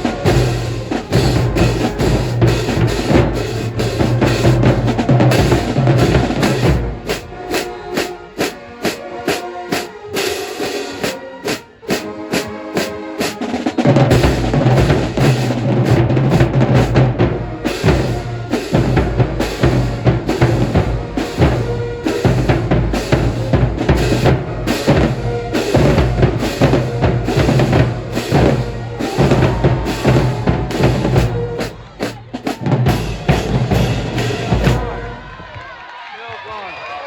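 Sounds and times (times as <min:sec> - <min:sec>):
marching band playing: 0:00.0 - 0:35.8
drumline beat: 0:00.0 - 0:36.0.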